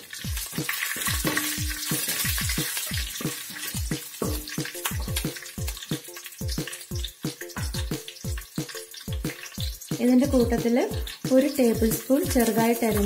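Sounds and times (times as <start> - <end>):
background music with a beat: 0.0 - 13.0
food sizzling in hot oil: 0.0 - 13.0
spatula stirring in a pan: 0.0 - 13.0.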